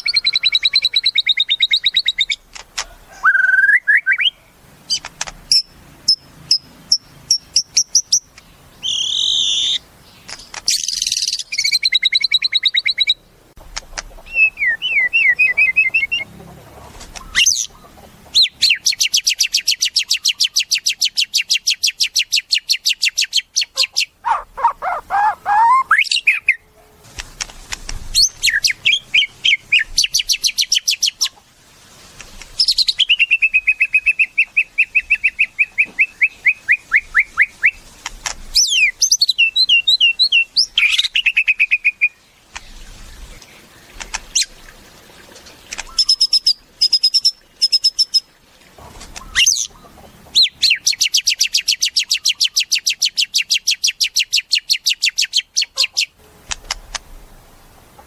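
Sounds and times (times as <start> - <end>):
bird singing whistled song: 0.0 - 2.4, 3.2 - 4.4, 5.5 - 9.8, 10.7 - 13.2, 14.2 - 16.3, 18.4 - 26.6, 28.2 - 31.0, 32.6 - 37.8, 38.6 - 42.2, 45.8 - 48.2
bird chattering notes: 23.7 - 26.6.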